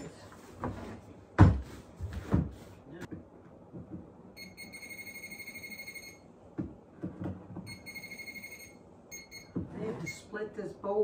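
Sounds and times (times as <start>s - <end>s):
metal detector pulsing tone: 7.7s - 9.5s.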